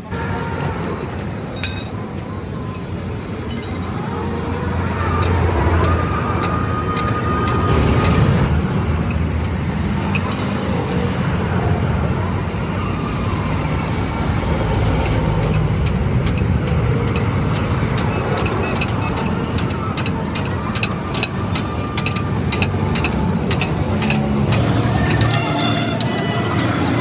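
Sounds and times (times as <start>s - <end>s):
roadside traffic: 0.0s - 27.0s
heavy vehicle engine droning: 0.7s - 27.0s.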